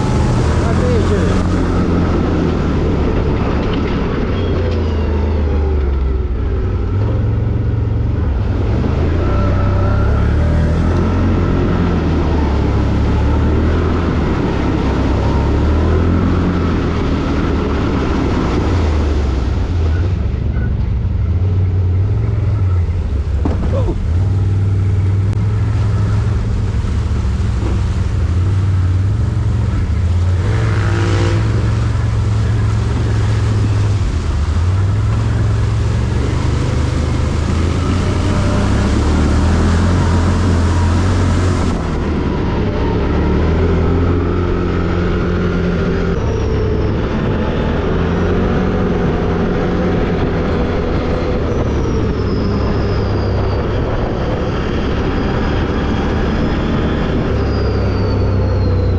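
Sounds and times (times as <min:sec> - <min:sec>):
quad bike engine revving: 0:28.6 - 0:51.3.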